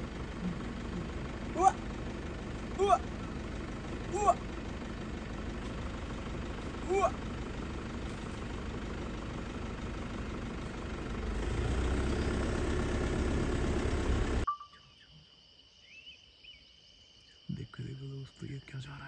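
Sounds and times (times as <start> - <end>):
faint insect drone: 0.0 - 10.1, 11.2 - 19.0
car engine running: 0.0 - 14.5.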